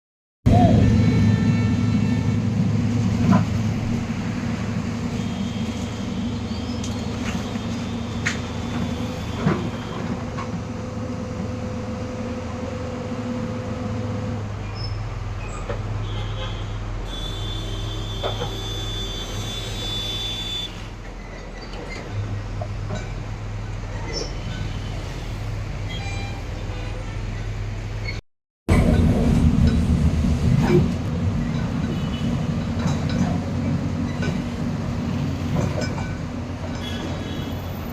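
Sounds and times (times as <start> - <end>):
diesel engine running: 28.7 - 37.0.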